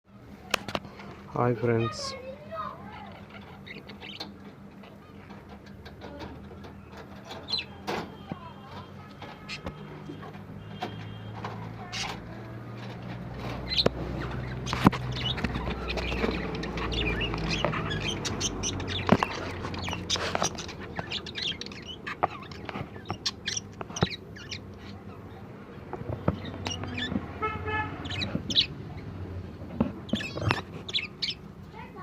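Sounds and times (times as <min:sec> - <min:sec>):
lovebirds chirping: 0:01.8 - 0:32.0.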